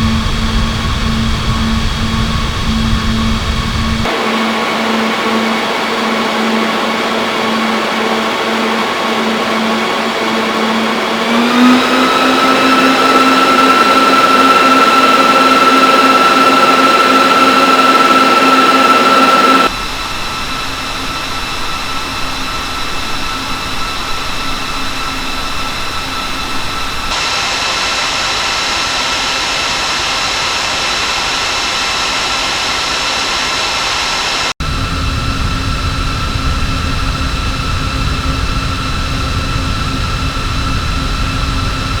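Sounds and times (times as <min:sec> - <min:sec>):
low fan rumble: 0:00.0 - 0:27.1, 0:34.6 - 0:42.0
cooling fans whirring: 0:00.0 - 0:42.0
high steady whining tones: 0:00.0 - 0:42.0.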